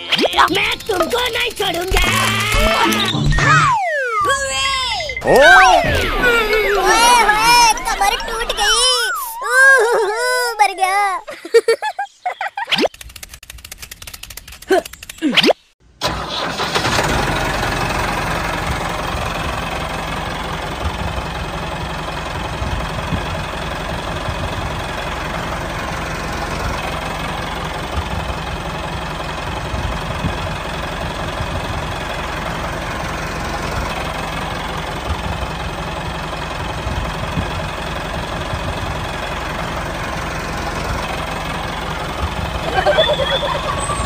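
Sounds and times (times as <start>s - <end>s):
miniature tractor engine running: 0.2s - 3.2s, 16.0s - 44.0s.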